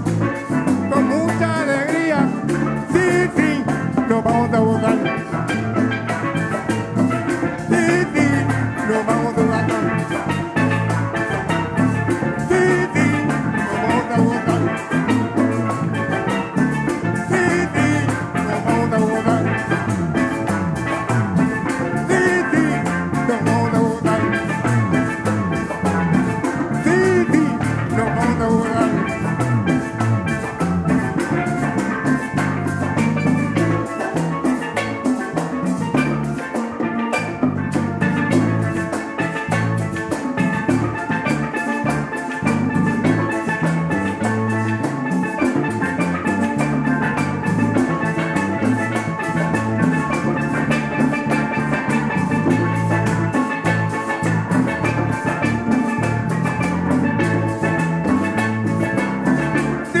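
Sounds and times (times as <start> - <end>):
bass line: 0.0 - 36.4, 37.4 - 60.0
drum kit beat: 0.0 - 36.5
sustained melodic instrument lines: 0.0 - 60.0.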